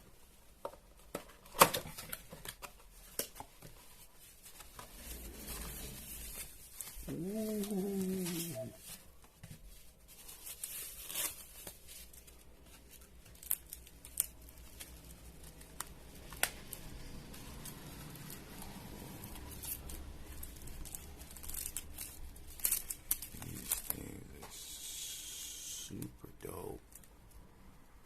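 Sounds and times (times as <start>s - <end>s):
packaging tearing and crinkling: 4.4s - 9.0s, 10.1s - 24.8s.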